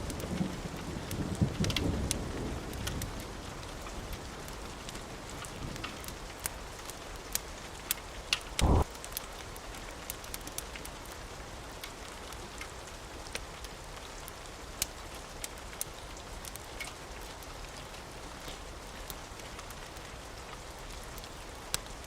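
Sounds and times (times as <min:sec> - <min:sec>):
sharp ticks and crackles: 0:00.0 - 0:22.0
steady rain falling: 0:00.0 - 0:22.0
short low thump: 0:08.6 - 0:08.9.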